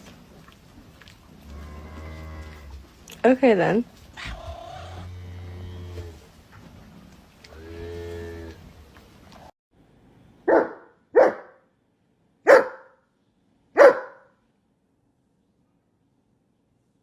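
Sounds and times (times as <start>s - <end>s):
dog barking: 10.5s - 11.6s, 12.4s - 13.0s, 13.8s - 14.4s.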